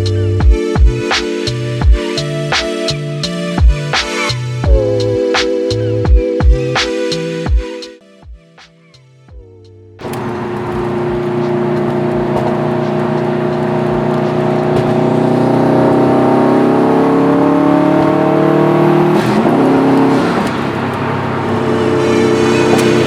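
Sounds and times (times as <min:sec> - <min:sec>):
car engine starting and idling: 0:10.0 - 0:23.0.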